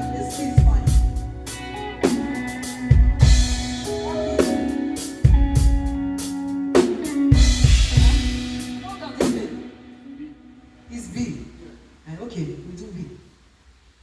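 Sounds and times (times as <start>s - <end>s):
live band playing: 0.0s - 11.2s.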